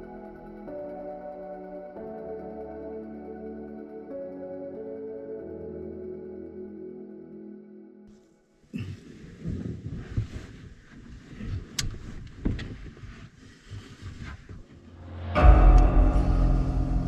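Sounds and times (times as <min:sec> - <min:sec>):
music: 0:00.0 - 0:09.6, 0:14.7 - 0:17.0.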